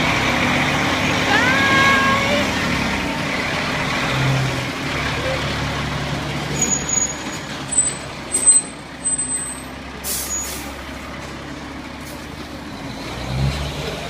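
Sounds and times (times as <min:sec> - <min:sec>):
diesel engine rumbling: 0:00.0 - 0:14.0
air brakes hissing: 0:10.0 - 0:10.8.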